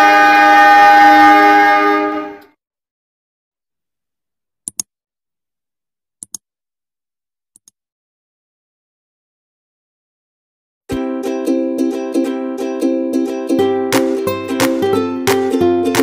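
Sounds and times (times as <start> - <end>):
diesel locomotive horn: 0.0 - 2.6
short clicks: 4.6 - 4.9, 6.2 - 6.4, 7.6 - 7.8.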